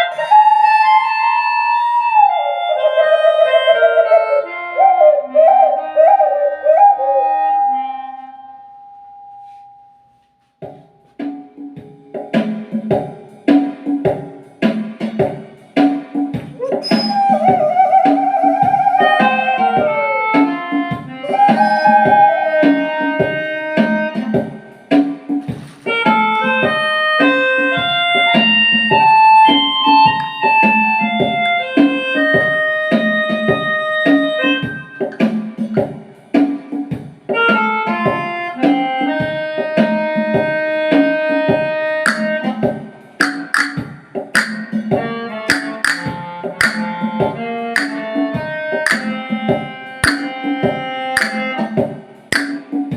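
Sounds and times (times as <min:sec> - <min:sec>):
melodica melody: 0:00.0 - 0:08.7, 0:18.9 - 0:24.8, 0:25.6 - 0:35.2, 0:37.4 - 0:42.7, 0:45.0 - 0:51.8
hand drum beat: 0:41.5 - 0:52.9
bright percussion strikes: 0:42.1 - 0:42.4, 0:43.2 - 0:47.0, 0:47.8 - 0:48.1, 0:48.9 - 0:49.2, 0:50.0 - 0:50.6, 0:51.2 - 0:51.7, 0:52.3 - 0:52.9.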